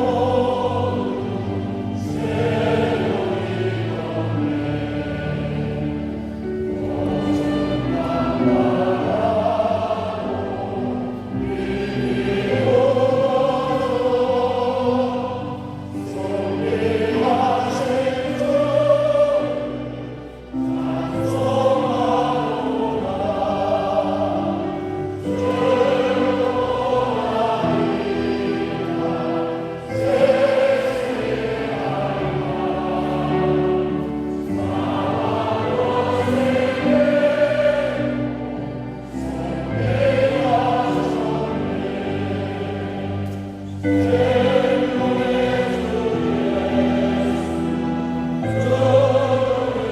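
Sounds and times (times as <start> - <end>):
congregation singing a hymn: 0.0 - 49.9.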